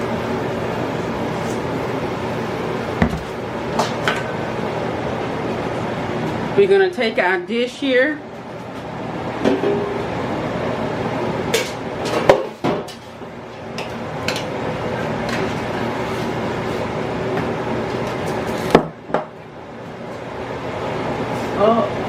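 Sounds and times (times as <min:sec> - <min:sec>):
steady background hum: 0:00.0 - 0:22.0
dish knocking on counter: 0:03.0 - 0:03.3.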